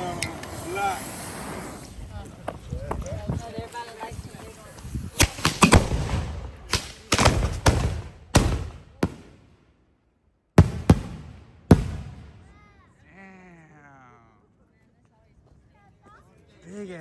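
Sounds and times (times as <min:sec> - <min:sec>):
fireworks bangs: 0:05.0 - 0:09.6, 0:10.6 - 0:12.8.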